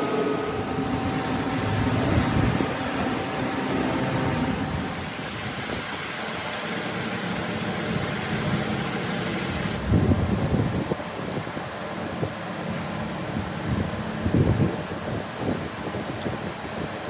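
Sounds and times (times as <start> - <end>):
workshop machinery humming: 0.0 - 9.8.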